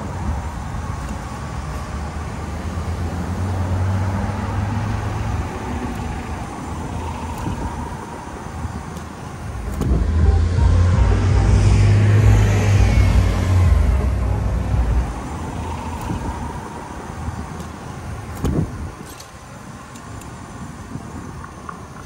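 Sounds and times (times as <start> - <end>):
car passing by: 1.6 - 18.7.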